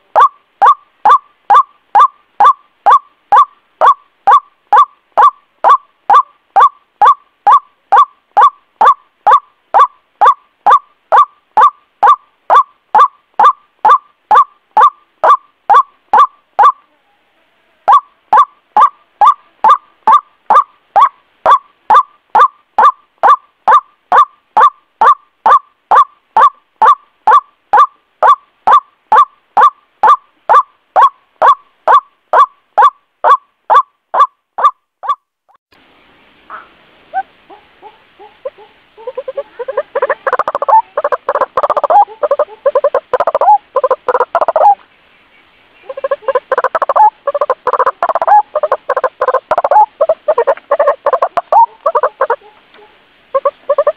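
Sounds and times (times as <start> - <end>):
bird call repeated: 0.1 - 17.2.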